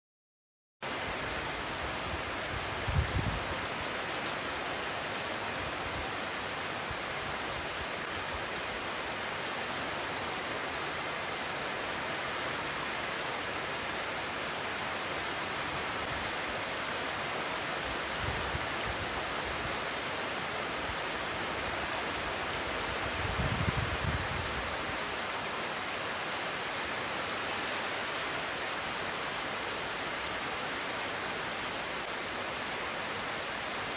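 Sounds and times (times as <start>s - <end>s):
steady rain falling: 0.8s - 33.9s
wind gusting over microphone: 2.1s - 3.5s, 23.0s - 24.7s.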